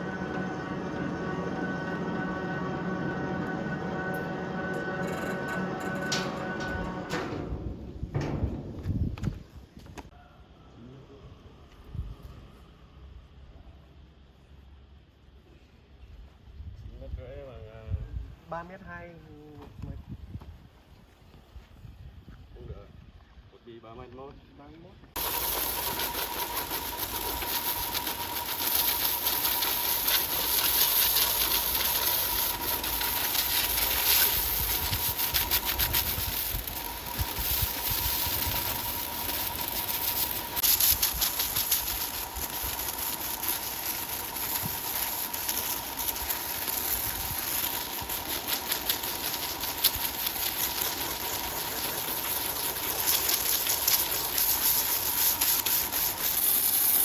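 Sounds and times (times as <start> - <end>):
sawmill machinery running: 0.0 - 10.0, 25.2 - 57.0.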